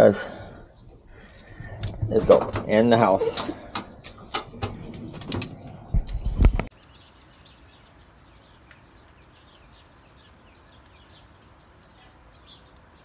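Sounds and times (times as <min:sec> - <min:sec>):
faint bird chirping: 0:06.7 - 0:13.0.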